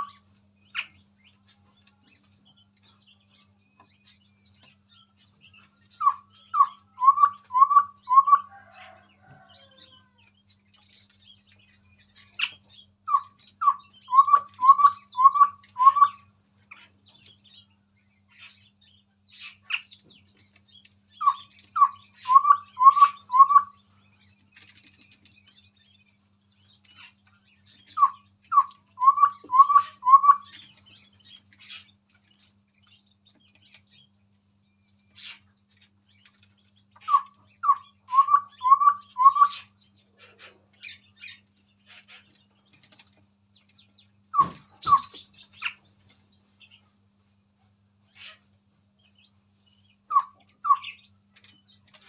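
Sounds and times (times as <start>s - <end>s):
bird whistled notes: 6.0s - 8.4s, 13.6s - 16.2s, 21.2s - 23.8s, 28.0s - 30.5s, 37.1s - 39.7s, 44.4s - 45.2s.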